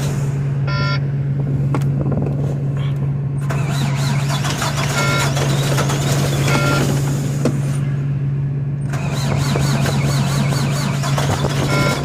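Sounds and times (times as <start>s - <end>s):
high whine: 0.0s - 3.6s
diesel truck engine running rough: 0.0s - 12.0s
short beeps: 0.6s - 1.1s, 4.9s - 5.4s, 6.4s - 6.9s, 11.6s - 12.0s.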